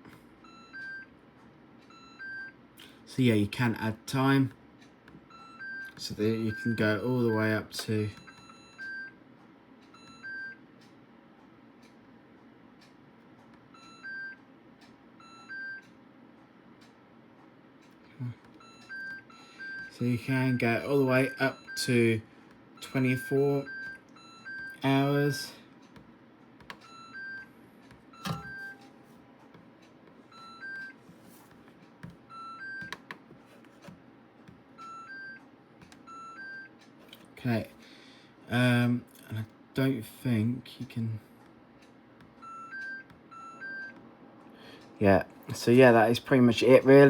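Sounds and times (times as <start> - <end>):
two-note control panel beeps: 18.6 - 22.2, 28.1 - 28.9
button clicks: 28.2 - 28.9.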